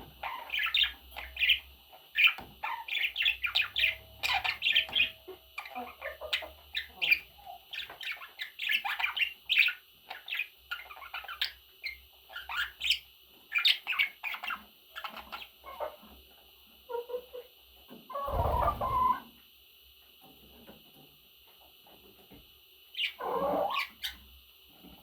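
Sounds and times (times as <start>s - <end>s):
budgerigars chirping and chattering: 0.1s - 16.2s, 18.1s - 19.2s, 23.0s - 24.2s.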